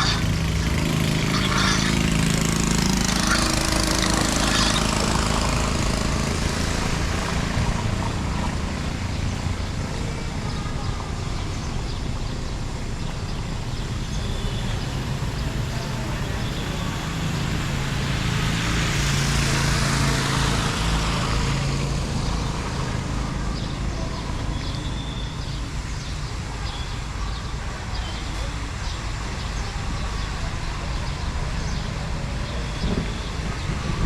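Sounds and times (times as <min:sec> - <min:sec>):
vehicle passing by: 0:00.0 - 0:10.5, 0:14.6 - 0:25.8.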